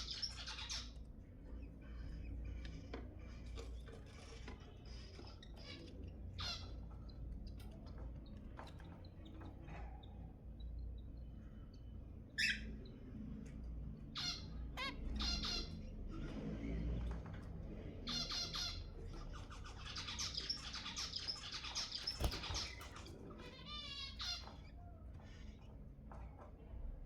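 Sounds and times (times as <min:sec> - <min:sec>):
finches calling: 0:00.0 - 0:02.9, 0:10.5 - 0:12.9, 0:18.1 - 0:24.7.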